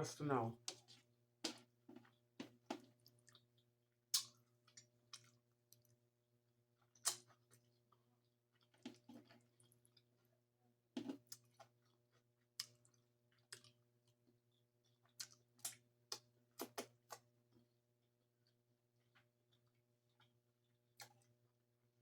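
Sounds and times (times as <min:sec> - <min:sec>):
mouth smacks while chewing: 0:00.7 - 0:06.0, 0:06.8 - 0:07.7, 0:11.0 - 0:14.2, 0:14.8 - 0:17.3, 0:18.4 - 0:21.4.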